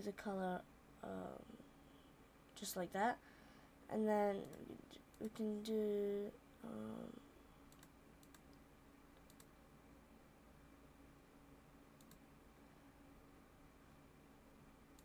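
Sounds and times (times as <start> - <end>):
faint steady hum: 0.0 - 15.0
computer mouse clicks: 4.4 - 5.4, 7.7 - 8.6, 9.2 - 9.6, 12.0 - 12.3.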